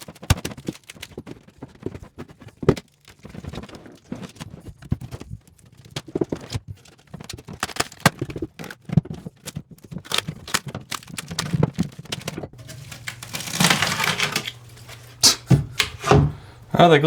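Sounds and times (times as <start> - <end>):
scraping rasp: 12.6 - 16.7
wood knocks and taps: 15.5 - 16.5.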